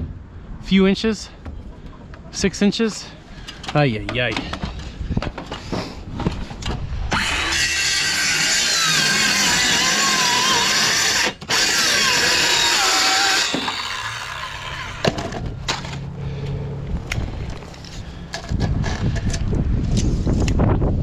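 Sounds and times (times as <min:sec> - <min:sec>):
wind gusting over microphone: 0:04.0 - 0:07.8, 0:16.6 - 0:21.0.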